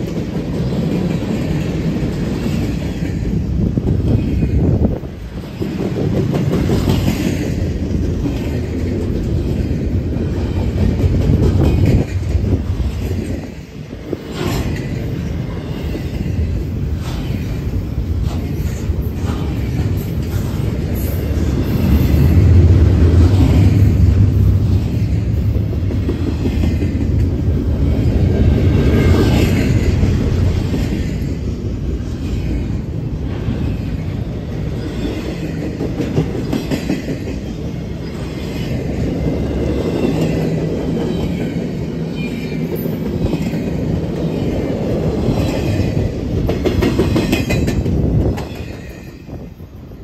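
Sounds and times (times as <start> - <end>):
freight train rolling past: 0.0 - 50.0
steel wheels clicking over rail joints: 39.2 - 49.3.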